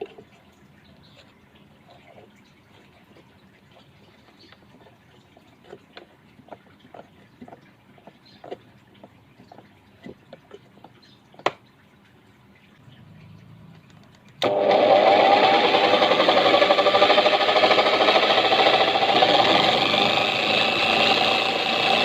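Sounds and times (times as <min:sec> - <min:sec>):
handling clicks and taps: 0:13.7 - 0:14.4
electric drill whining: 0:14.4 - 0:22.0.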